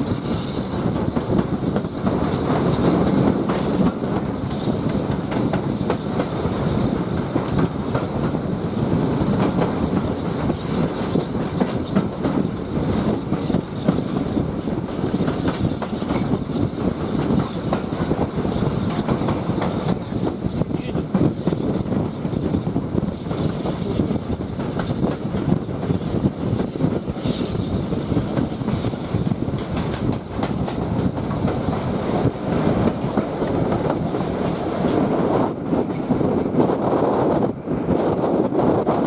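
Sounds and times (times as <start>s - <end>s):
train carriage rumble: 0.0s - 39.0s
wheels clicking over rail joints: 21.1s - 35.2s.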